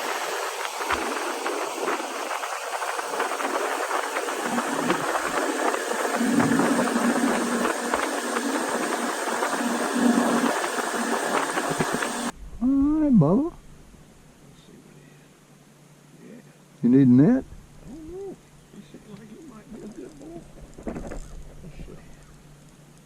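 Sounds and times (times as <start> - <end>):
motor running: 0.0 - 12.3
steady rushing hiss: 0.0 - 16.9, 18.4 - 23.0
low hum: 0.0 - 23.0.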